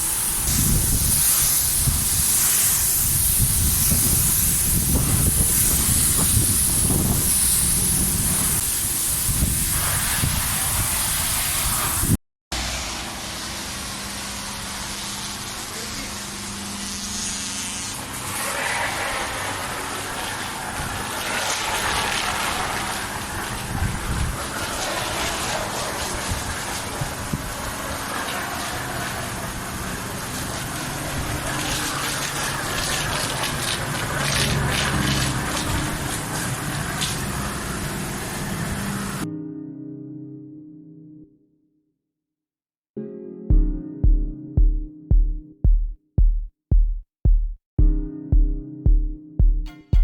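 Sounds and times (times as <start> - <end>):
hose spraying water on car: 0.0 - 39.2.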